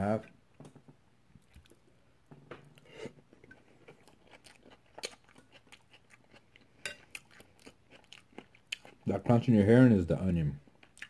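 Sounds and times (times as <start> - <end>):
chewing eggs and onion crunches: 2.8 - 9.5.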